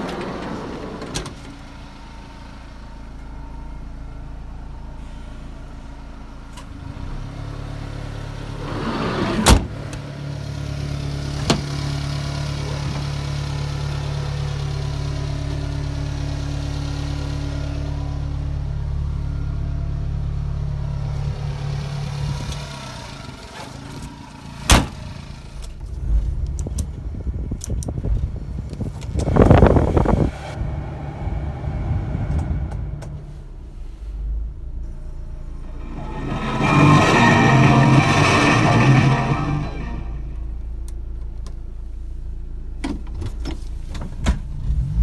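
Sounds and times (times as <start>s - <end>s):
van engine idling: 0.0s - 8.7s.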